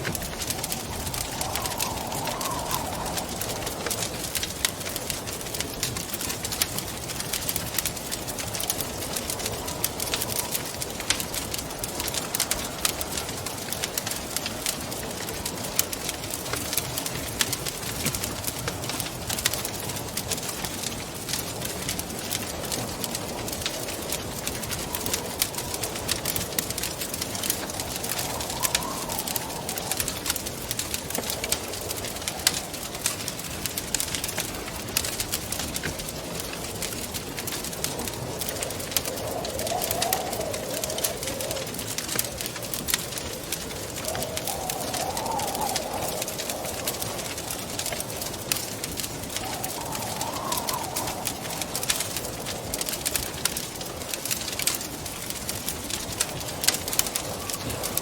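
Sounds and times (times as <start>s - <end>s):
wind rushing: 0.0s - 14.4s, 22.7s - 54.2s
wood fire crackling: 0.0s - 58.0s.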